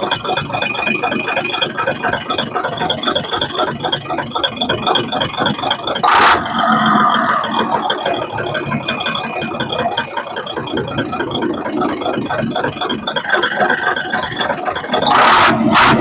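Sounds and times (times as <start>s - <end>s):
diesel engine idling: 5.9s - 12.0s, 13.3s - 16.0s.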